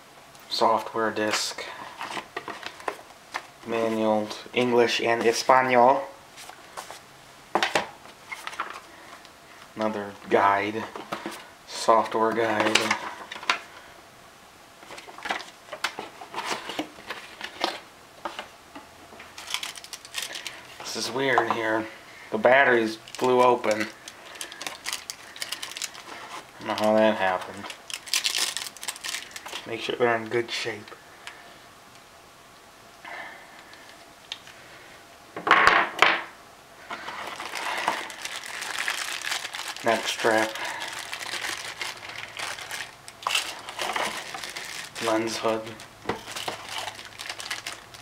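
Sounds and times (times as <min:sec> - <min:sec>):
packaging rustling: 0:01.9 - 0:04.3, 0:07.6 - 0:09.3, 0:14.8 - 0:18.5, 0:19.2 - 0:21.8, 0:22.7 - 0:29.8, 0:36.9 - 0:48.0.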